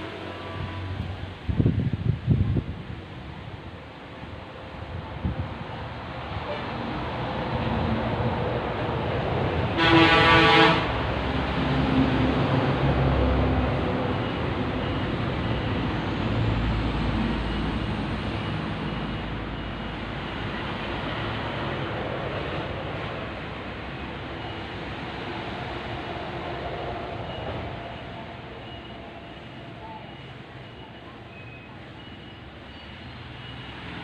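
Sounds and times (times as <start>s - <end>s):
passing vehicle engines rumbling: 0.0s - 34.0s
road traffic noise: 0.0s - 34.0s
vehicle horn: 6.4s - 6.8s, 9.8s - 11.0s.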